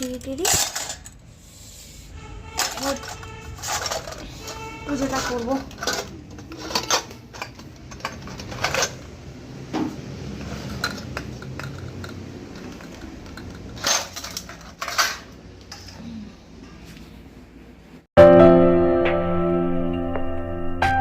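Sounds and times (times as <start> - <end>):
metal vessels clinking: 0.0 - 1.3, 2.3 - 9.3, 10.2 - 16.0.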